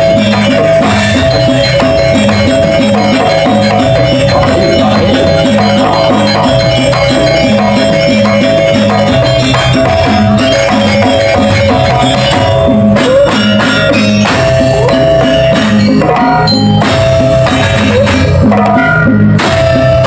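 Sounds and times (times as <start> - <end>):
drums and percussion: 0.0 - 20.0
sustained tones: 0.5 - 13.5.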